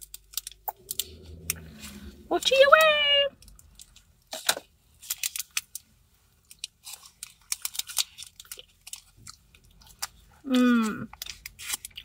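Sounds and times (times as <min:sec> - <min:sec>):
person chewing rice cakes: 0:03.4 - 0:12.0.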